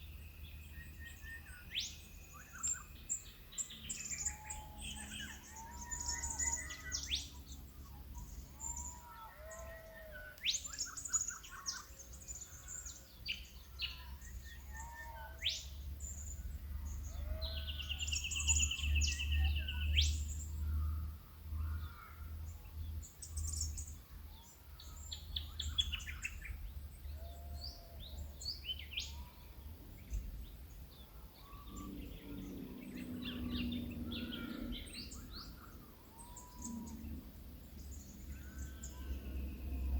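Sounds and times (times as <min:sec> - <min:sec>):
birds calling: 0:02.4 - 0:20.0, 0:23.4 - 0:39.9
low drawn-out bird call: 0:31.3 - 0:39.9.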